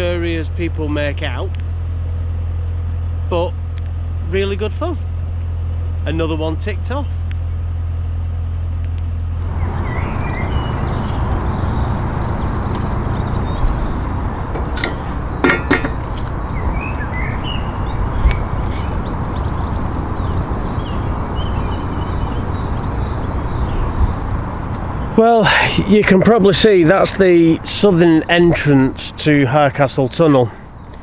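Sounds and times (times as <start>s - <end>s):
small birds chirping: 9.4s - 31.0s
steady outdoor rushing noise: 9.4s - 31.0s
sharp clicks: 12.7s - 13.0s.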